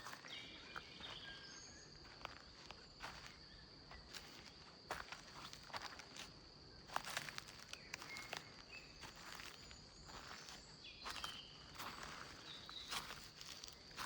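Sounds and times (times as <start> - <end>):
footsteps crunching: 6.9 - 14.0.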